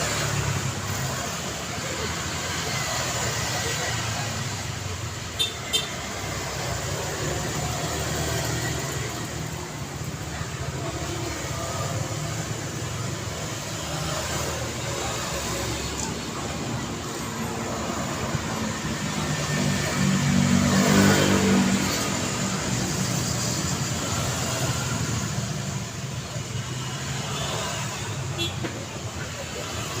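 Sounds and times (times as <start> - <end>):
road traffic: 0.0 - 30.0.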